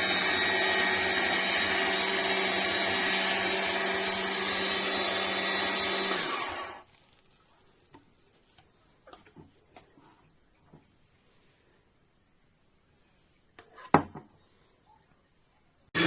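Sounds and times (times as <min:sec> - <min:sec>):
juicer motor humming: 0:00.0 - 0:06.9.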